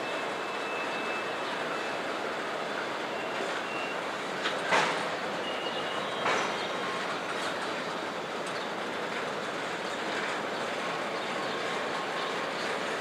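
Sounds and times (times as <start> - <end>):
faint wheel squeals: 0.0 - 2.0, 2.8 - 4.2, 5.0 - 7.1
train wheels rumbling on rail: 0.0 - 13.0.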